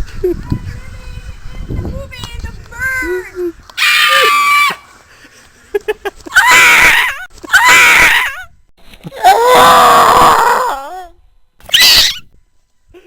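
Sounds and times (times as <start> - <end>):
person screeching cries: 3.8 - 4.8, 6.3 - 8.4, 9.2 - 11.1, 11.7 - 12.2.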